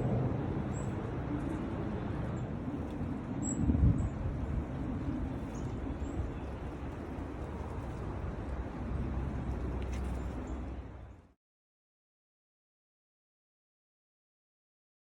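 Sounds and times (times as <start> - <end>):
low rumble of wind: 0.0 - 11.4.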